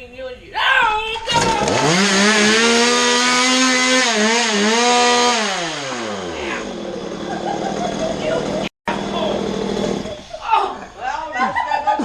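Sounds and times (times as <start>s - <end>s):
chainsaw engine revving: 1.3s - 10.4s.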